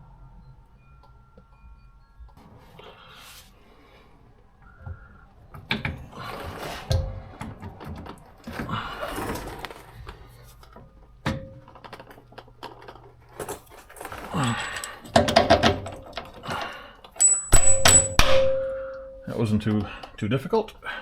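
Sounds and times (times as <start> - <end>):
ringing metal clang: 11.2 - 11.8, 17.2 - 19.7
metal parts scraping and clinking: 11.4 - 16.5
metal knocks: 17.2 - 19.5.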